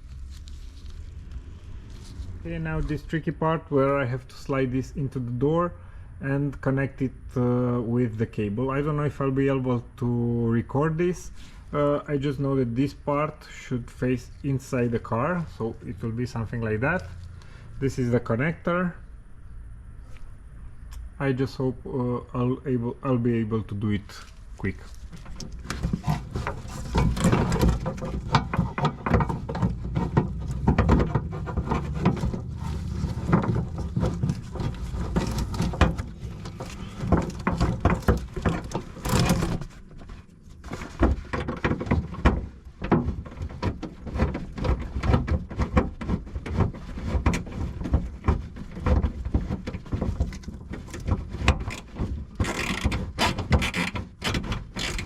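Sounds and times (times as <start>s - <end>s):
metallic clunks and rattles: 24.9s - 55.0s.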